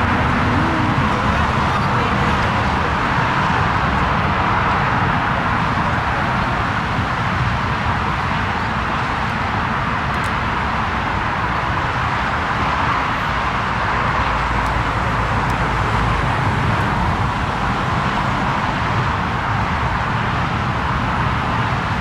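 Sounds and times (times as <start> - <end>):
jet engines rushing: 0.0 - 4.6.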